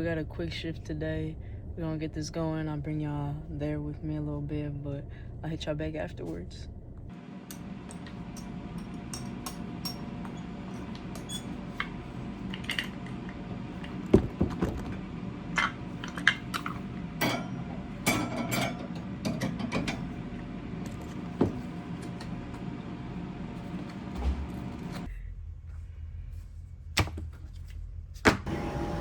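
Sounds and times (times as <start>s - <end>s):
low hum: 0.0s - 26.9s
objects clinking and knocking: 7.9s - 20.1s.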